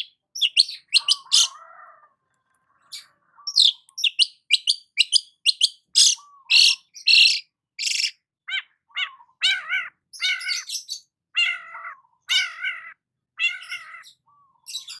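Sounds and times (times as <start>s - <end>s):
bird harsh rasping notes: 0.0s - 1.6s, 2.8s - 8.1s
bird singing with sharp chips: 0.0s - 1.6s, 2.9s - 8.2s
bird wavering drawn-out calls: 0.0s - 15.0s.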